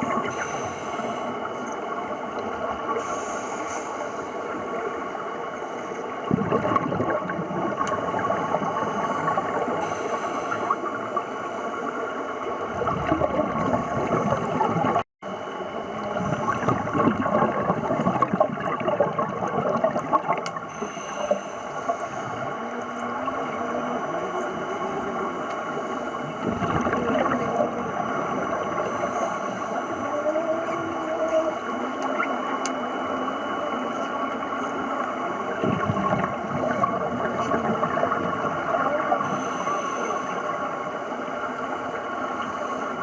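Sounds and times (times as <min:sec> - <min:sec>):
scuba divers breathing: 0:00.0 - 0:01.7, 0:03.0 - 0:05.0, 0:08.0 - 0:12.4, 0:20.6 - 0:23.0, 0:28.7 - 0:30.1, 0:39.2 - 0:41.2
regulator bubbles gurgling: 0:00.0 - 0:43.0
underwater hiss: 0:00.1 - 0:01.8, 0:02.9 - 0:06.1, 0:08.0 - 0:12.5, 0:20.6 - 0:22.6.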